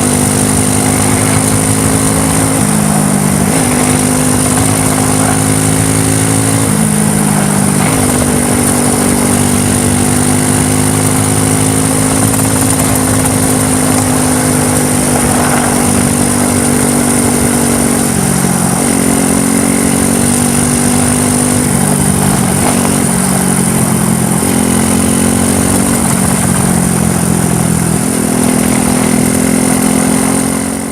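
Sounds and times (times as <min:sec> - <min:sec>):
quad bike engine running: 0:00.0 - 0:30.9
steady high whine: 0:00.0 - 0:30.9.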